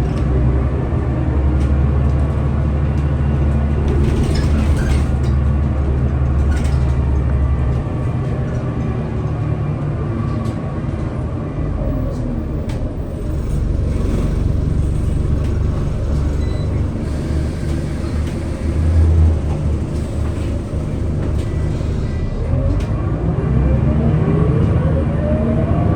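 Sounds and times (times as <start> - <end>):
bus engine running: 0.0 - 25.9
road noise: 0.0 - 25.9.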